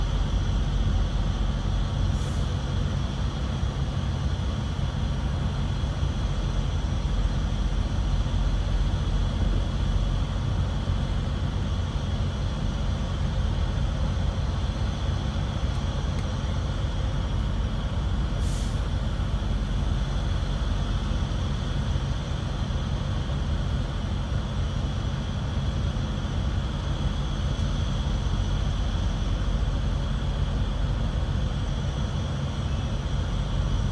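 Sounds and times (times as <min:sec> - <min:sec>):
diesel truck engine running: 0:00.0 - 0:25.5
short air hisses: 0:18.4 - 0:20.8.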